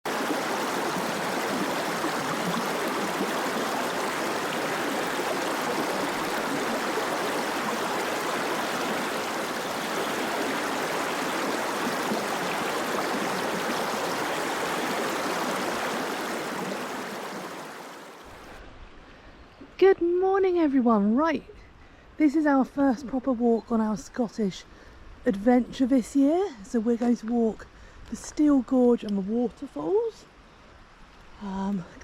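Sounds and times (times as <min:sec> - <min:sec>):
fast-flowing water rushing: 0:00.0 - 0:18.6.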